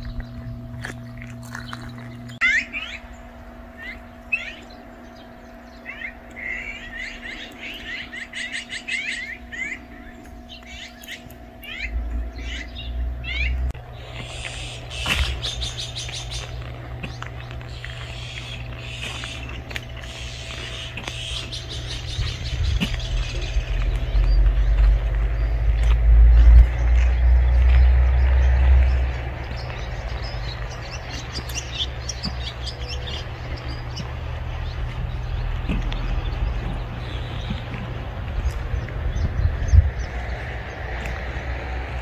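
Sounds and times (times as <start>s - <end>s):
faint steady hum: 0.0s - 42.0s
small birds chirping: 0.0s - 42.0s
low rumble: 9.4s - 42.0s.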